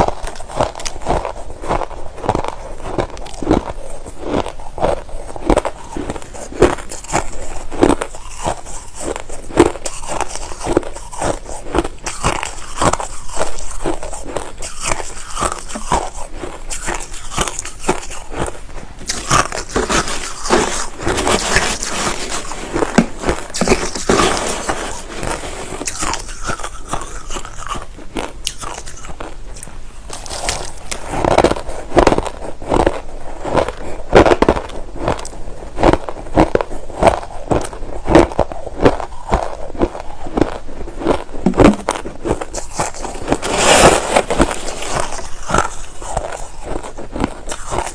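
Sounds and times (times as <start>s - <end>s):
person crunching ice: 0.0s - 47.9s.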